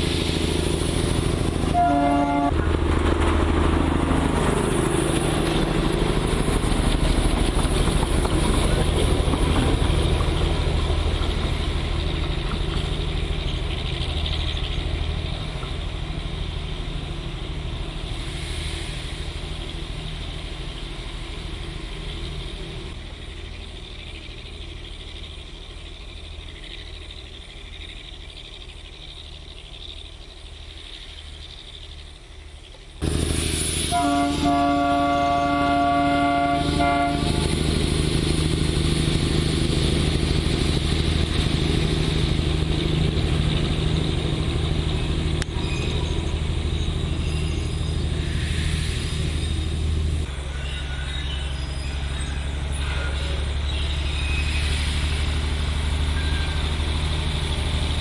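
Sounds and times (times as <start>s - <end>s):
diesel locomotive engine running: 0.0s - 58.0s
train horn: 1.7s - 2.6s, 33.9s - 37.7s.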